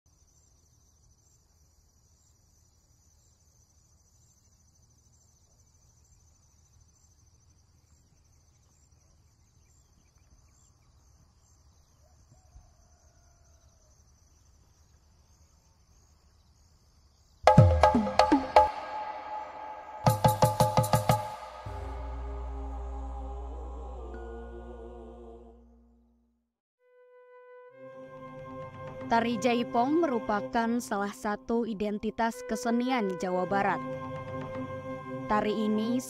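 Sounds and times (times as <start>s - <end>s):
faint insect chirping: 0.1s - 17.7s.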